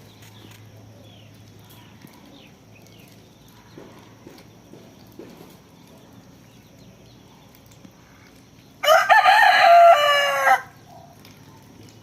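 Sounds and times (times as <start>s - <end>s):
rooster crowing: 8.8s - 10.8s.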